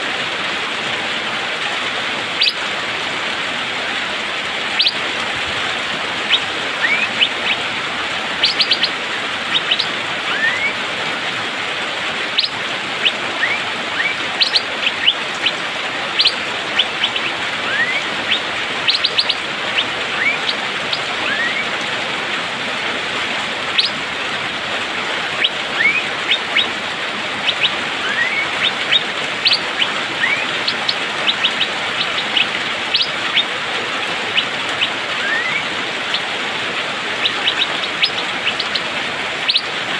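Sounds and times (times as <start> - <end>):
bird sharp upward calls: 2.4 - 2.6, 4.8 - 5.0, 6.2 - 10.8, 12.3 - 21.7, 23.7 - 24.0, 25.3 - 26.8, 27.4 - 33.6, 34.2 - 36.4, 37.0 - 39.8.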